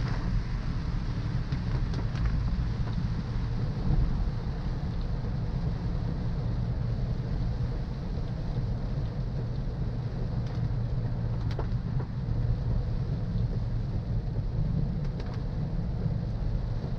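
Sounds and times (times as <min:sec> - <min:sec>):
rain hissing: 0:00.0 - 0:11.6
car driving on wet road: 0:00.0 - 0:16.9.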